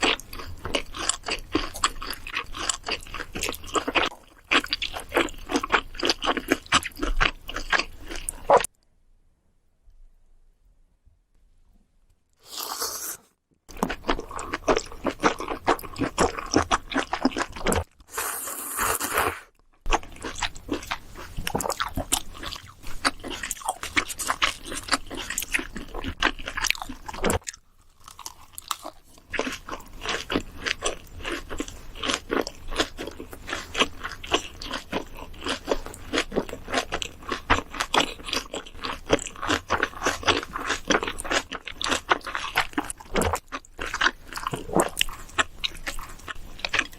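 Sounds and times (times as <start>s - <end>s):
wet chewing with crunches: 0.0s - 8.7s, 13.7s - 18.2s, 18.8s - 46.9s
slurping noodles: 12.4s - 13.4s, 17.7s - 19.5s.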